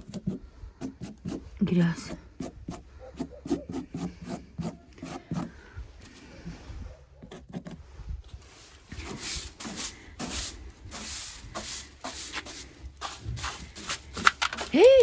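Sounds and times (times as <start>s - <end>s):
short scraping rubbing strokes: 2.3s - 14.2s.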